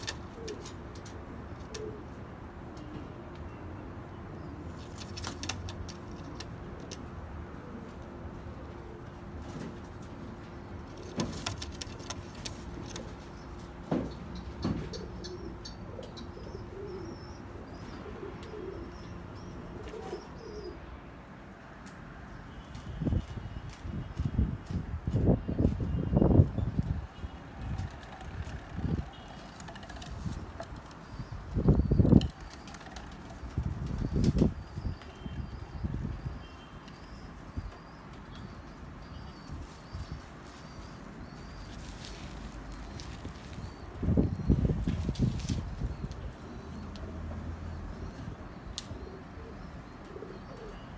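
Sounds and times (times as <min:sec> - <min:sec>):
pigeons cooing: 0:00.0 - 0:02.2, 0:14.6 - 0:20.8, 0:39.4 - 0:50.9
pigeons chirping: 0:00.0 - 0:03.0, 0:04.2 - 0:20.8, 0:22.7 - 0:50.9
birds thumping and rustling: 0:04.7 - 0:07.1, 0:09.0 - 0:15.2, 0:22.7 - 0:36.2, 0:39.4 - 0:48.4.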